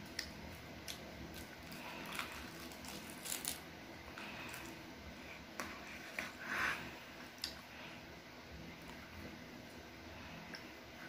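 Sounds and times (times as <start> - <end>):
seaweed snack crackling when chewed: 0.8 - 3.6.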